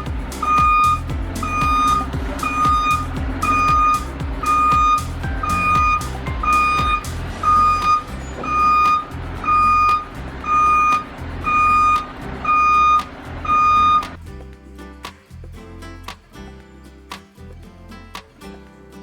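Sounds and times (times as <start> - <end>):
diesel engine running: 0.0 - 14.5.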